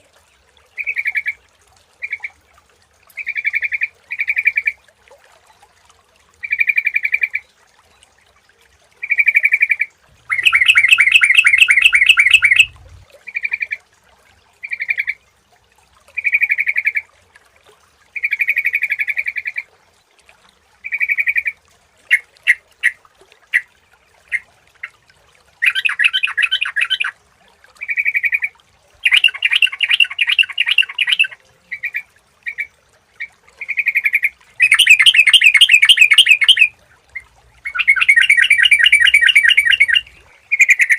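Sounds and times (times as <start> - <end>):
bulbuls singing: 10.2 - 13.0, 29.0 - 32.6, 34.0 - 36.7, 37.6 - 40.9.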